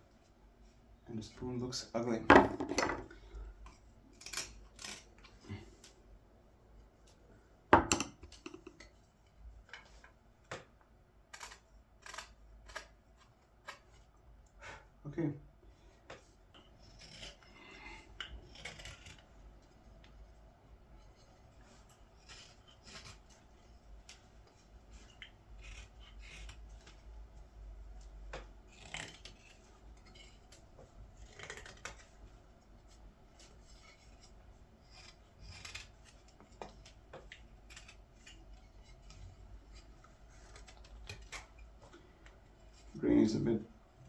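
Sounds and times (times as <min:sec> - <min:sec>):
knife carving wood: 0:03.6 - 0:05.9, 0:11.3 - 0:14.2, 0:16.1 - 0:20.3, 0:21.0 - 0:43.0.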